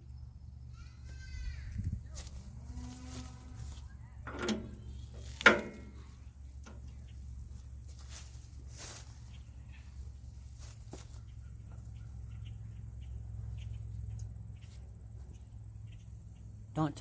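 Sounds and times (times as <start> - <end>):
steady low hum: 0.0 - 17.0
sharp metal clanks: 4.3 - 6.1.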